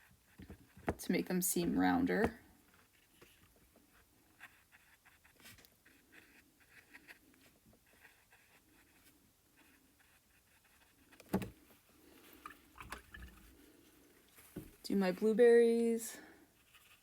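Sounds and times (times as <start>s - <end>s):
paintbrush scratching on canvas: 0.0s - 11.2s, 16.5s - 17.0s.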